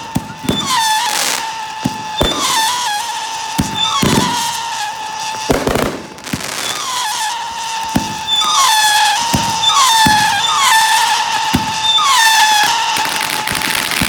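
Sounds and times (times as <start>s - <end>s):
fireworks bangs: 0.0s - 14.0s
fireworks whistling: 0.0s - 14.0s.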